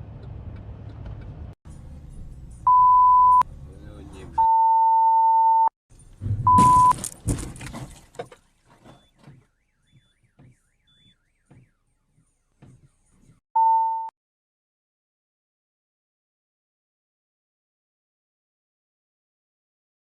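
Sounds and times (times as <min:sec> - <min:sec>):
censor bleep: 0:02.7 - 0:03.4, 0:04.4 - 0:05.7, 0:06.5 - 0:07.0, 0:13.6 - 0:14.1.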